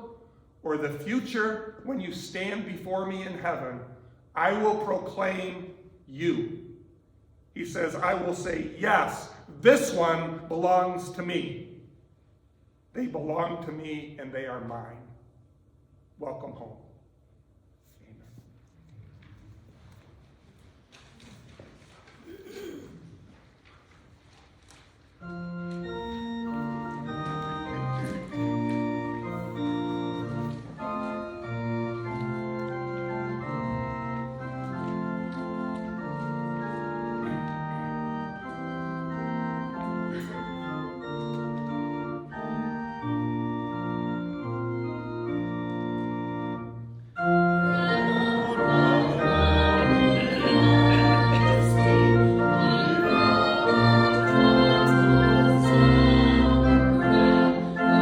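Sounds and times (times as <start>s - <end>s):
church organ chords: 0.0s - 6.8s, 7.6s - 11.9s, 25.2s - 58.0s.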